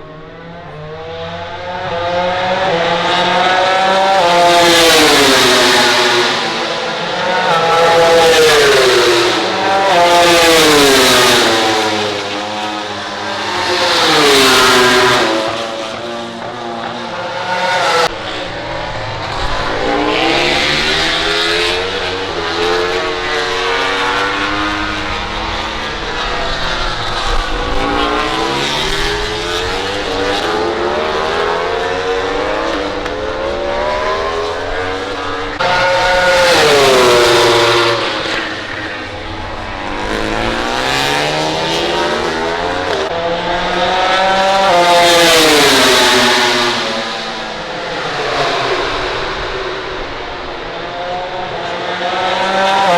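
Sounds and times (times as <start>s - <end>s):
racing motorcycles passing: 0.0s - 52.9s.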